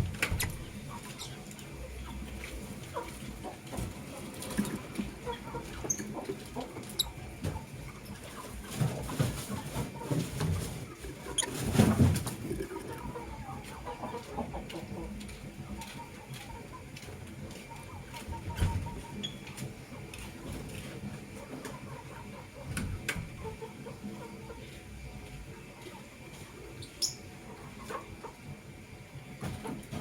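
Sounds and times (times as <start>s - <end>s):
lovebirds chattering: 9.9s - 15.0s, 26.8s - 27.3s.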